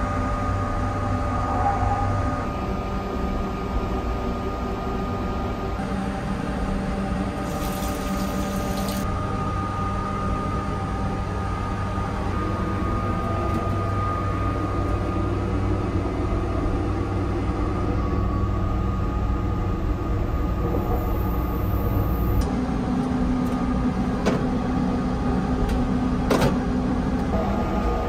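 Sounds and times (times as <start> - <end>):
train running rumble: 19.7 - 28.0.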